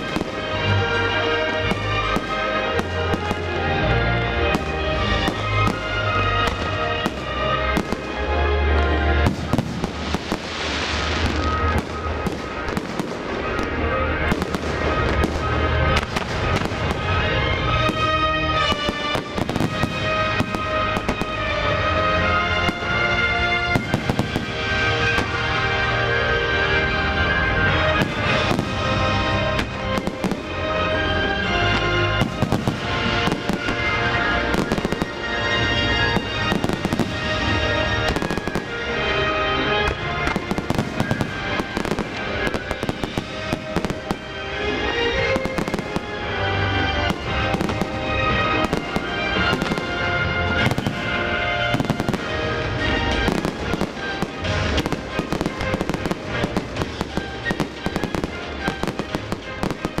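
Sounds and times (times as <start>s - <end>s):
fireworks shells bursting: 4.4s - 21.5s.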